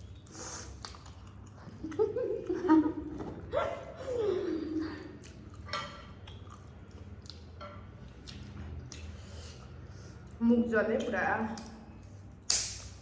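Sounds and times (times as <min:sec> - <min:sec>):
wet mouth clicks and smacks: 0:00.0 - 0:01.7, 0:05.2 - 0:10.4, 0:11.5 - 0:13.0
person chewing noodles: 0:00.0 - 0:02.6, 0:04.8 - 0:10.4.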